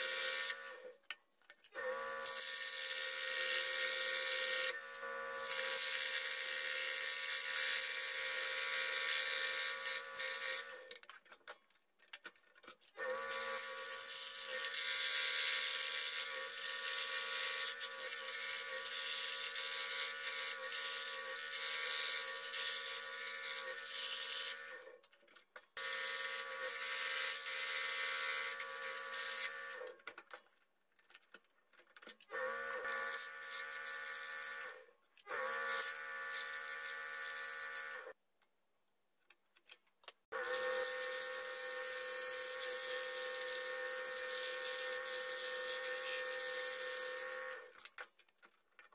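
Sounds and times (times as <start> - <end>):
scroll saw motor hum: 0.0 - 1.0, 25.8 - 30.0, 32.3 - 38.2, 40.4 - 47.8.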